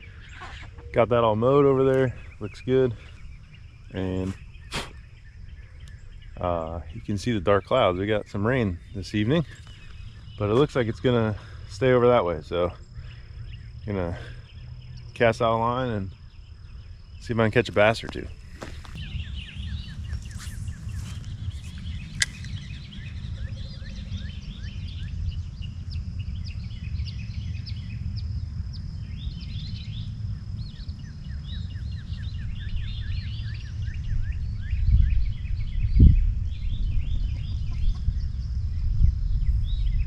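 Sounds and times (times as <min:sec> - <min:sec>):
chorus of chirping calls: 0:00.0 - 0:38.4
high insect drone: 0:00.0 - 0:40.0
wind rumbling on microphone: 0:00.0 - 0:40.0
sharp click: 0:22.2 - 0:22.6.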